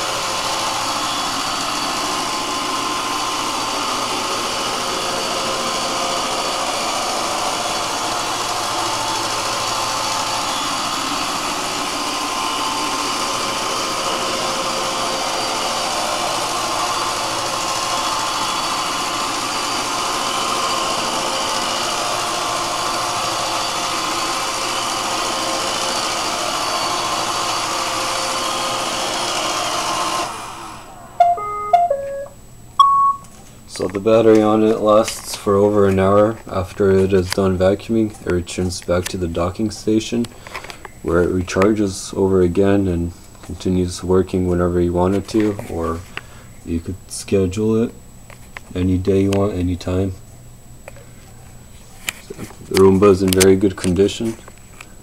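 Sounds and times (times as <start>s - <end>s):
robot vacuum whirring: 0.0s - 31.4s
short beeps: 31.2s - 33.3s.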